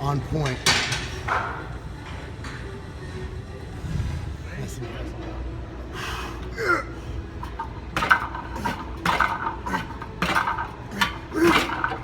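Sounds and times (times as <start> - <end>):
gym equipment scraping and rattling: 7.3 - 12.0.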